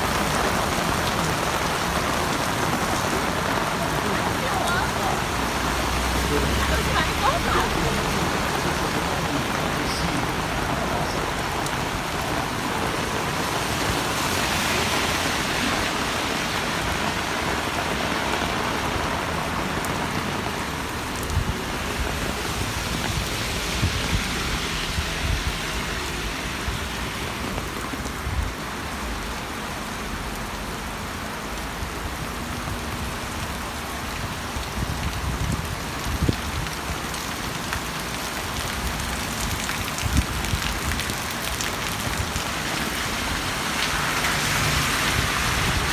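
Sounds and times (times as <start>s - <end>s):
heavy rain hissing: 0.0s - 45.9s.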